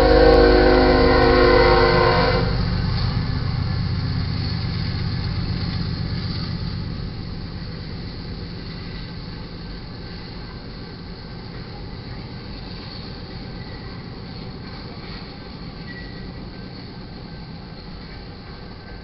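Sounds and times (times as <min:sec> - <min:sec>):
locomotive air horn: 0:00.0 - 0:02.6
diesel locomotives passing: 0:00.0 - 0:19.0
train wheels rumbling on rails: 0:00.0 - 0:19.0.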